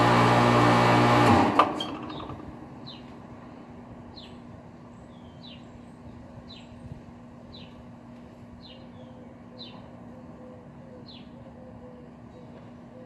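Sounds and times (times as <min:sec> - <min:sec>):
bird chirping: 0:02.1 - 0:03.1, 0:04.1 - 0:06.8.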